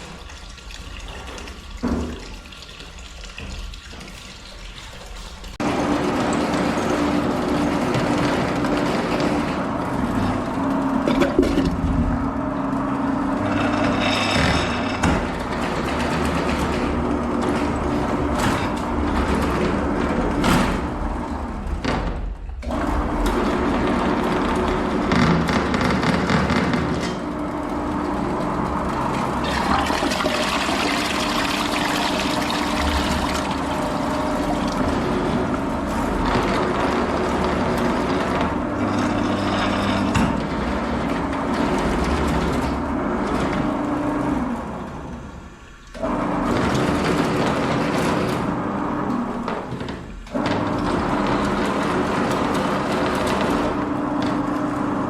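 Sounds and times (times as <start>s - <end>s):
water rushing and draining: 0.0s - 21.9s, 27.2s - 39.4s.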